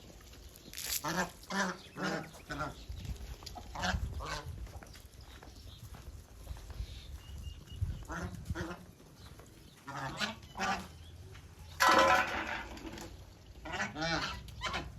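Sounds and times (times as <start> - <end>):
waterfowl calling: 9.8 - 10.9, 13.6 - 14.9.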